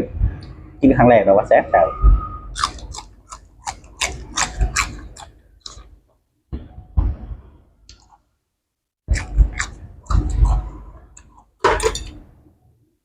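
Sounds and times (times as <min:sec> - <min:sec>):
person chewing: 0:02.5 - 0:06.0, 0:07.9 - 0:08.3, 0:09.1 - 0:11.6.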